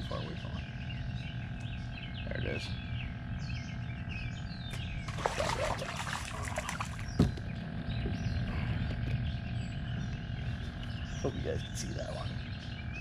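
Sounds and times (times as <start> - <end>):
fish splashing in water: 5.0 - 7.3.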